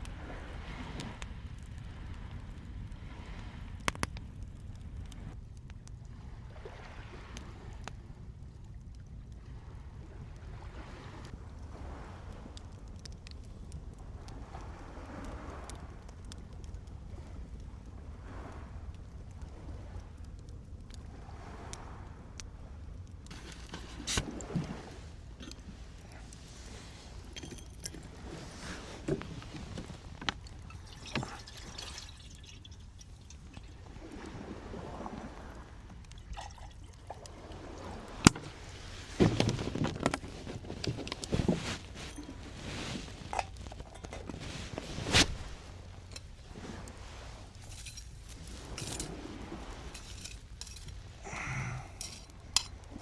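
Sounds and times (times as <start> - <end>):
small hard objects clinking: 23.3 - 24.3, 27.2 - 28.1, 47.6 - 49.2, 49.9 - 53.0
liquid pouring and dripping: 29.4 - 33.9, 35.9 - 38.5
sharp clinks: 50.0 - 51.0.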